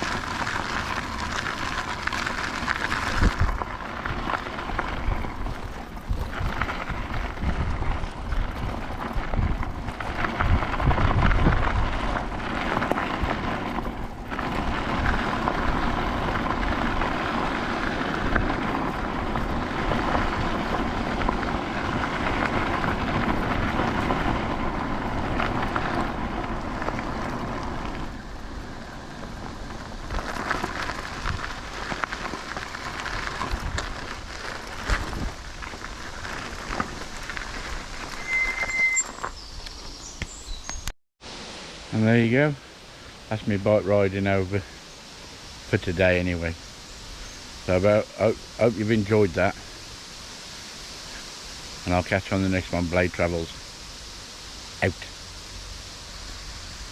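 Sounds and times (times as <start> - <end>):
wind buffeting microphone: 0.0 - 38.3
rolling road noise: 0.0 - 56.9.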